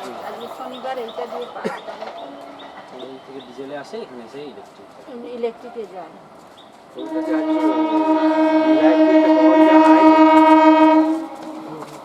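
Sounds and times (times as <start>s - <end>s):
train horn long blast: 7.0s - 12.0s.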